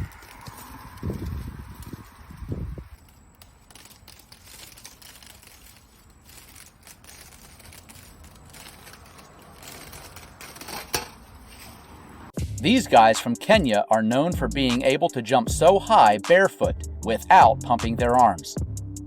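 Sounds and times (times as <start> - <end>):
vine stems crackling and snapping: 0.0 - 12.2.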